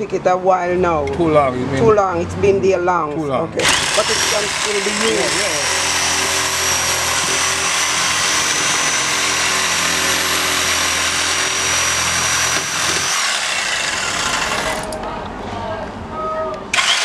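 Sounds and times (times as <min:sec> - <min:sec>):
electric saw cutting calabash: 0:03.6 - 0:15.0, 0:16.7 - 0:17.0.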